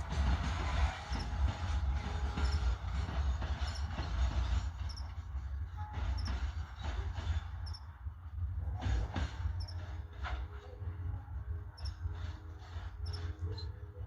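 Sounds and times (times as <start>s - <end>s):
wheels clacking over rail joints: 0.0s - 11.1s
freight train rumbling: 0.0s - 14.0s
faint wheel squeal: 0.8s - 8.0s, 11.7s - 14.0s.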